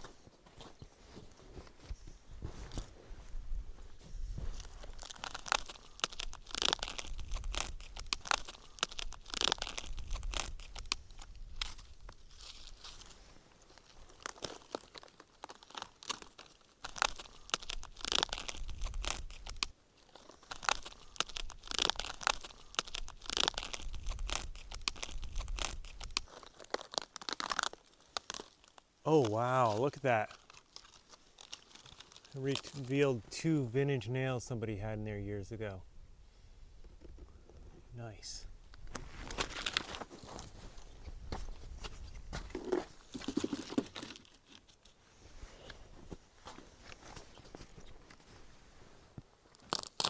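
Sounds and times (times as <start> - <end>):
bark being torn off tree: 4.9 - 11.8.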